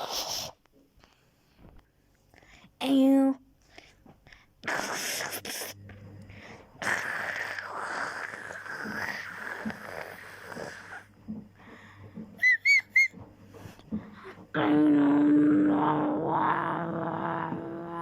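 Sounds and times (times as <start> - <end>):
person making breathy wheezing rasp: 0.0 - 0.6, 4.6 - 5.8, 6.8 - 11.1
high whistled squeaks: 12.4 - 13.2.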